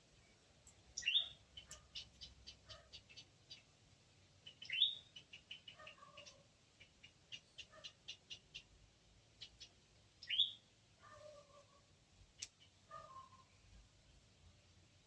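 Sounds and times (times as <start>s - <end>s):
squirrel squealing and chirping: 1.0s - 3.6s, 4.4s - 6.4s, 9.4s - 10.6s.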